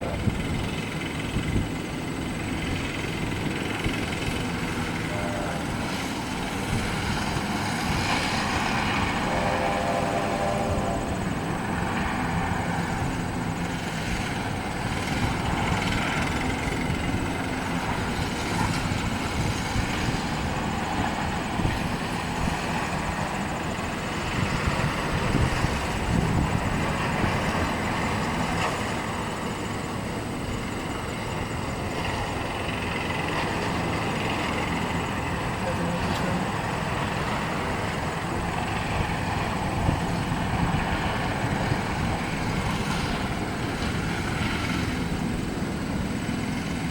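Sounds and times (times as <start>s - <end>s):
cluster of steady tones: 0.0s - 19.3s, 27.6s - 40.6s
train passing rumble: 0.0s - 46.9s.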